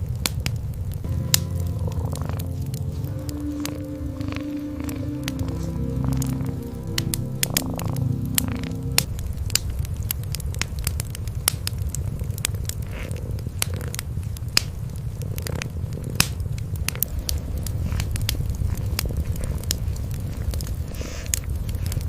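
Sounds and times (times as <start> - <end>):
wood fire crackling: 0.0 - 22.0
cats purring: 1.1 - 9.1, 11.8 - 22.0.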